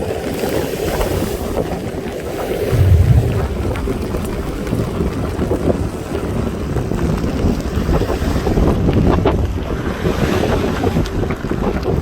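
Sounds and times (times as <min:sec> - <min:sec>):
wind buffeting microphone: 0:02.7 - 0:05.1.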